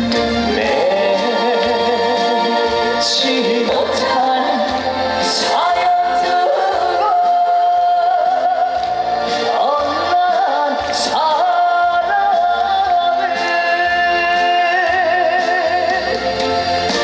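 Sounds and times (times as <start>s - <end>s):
band playing live trot music: 0.0s - 17.0s.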